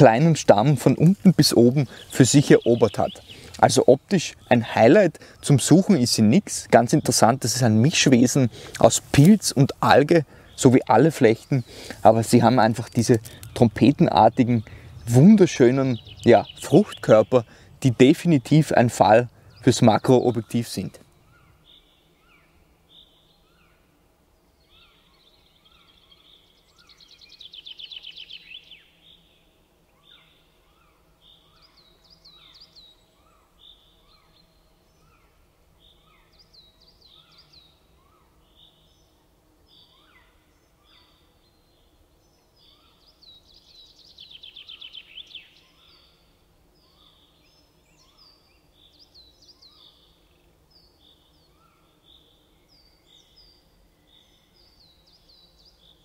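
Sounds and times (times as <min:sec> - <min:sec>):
songbirds chirping: 0:00.0 - 0:56.0
loud rapid bird trill: 0:09.9 - 0:23.7.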